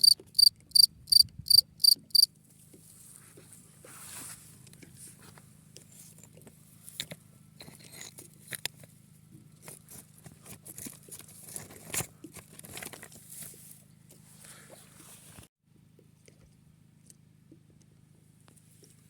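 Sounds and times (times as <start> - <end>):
rustling: 2.5 - 8.8.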